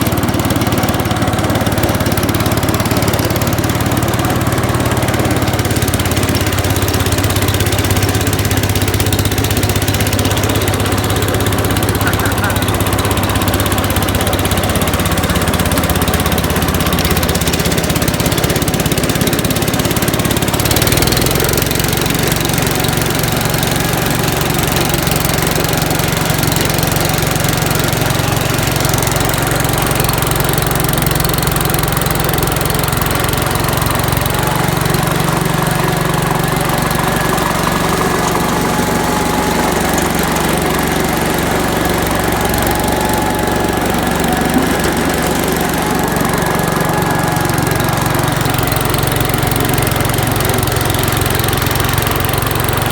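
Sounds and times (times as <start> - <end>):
walk-behind tractor engine running: 0.0 - 52.9.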